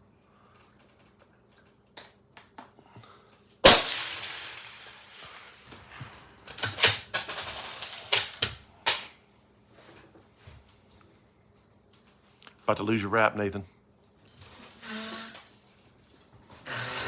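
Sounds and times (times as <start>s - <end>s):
loud rifle shot: 3.6s - 5.5s
sharp cracks and clacks: 3.6s - 7.1s.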